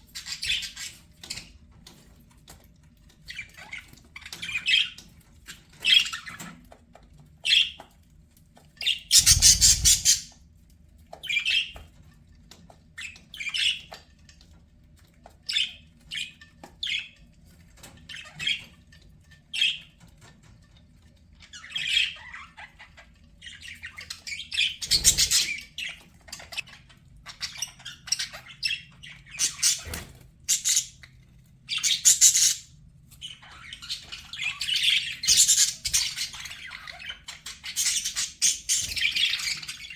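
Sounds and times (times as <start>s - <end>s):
budgerigars chirping: 0.1s - 1.5s, 8.8s - 10.4s, 23.4s - 31.0s, 31.7s - 39.9s.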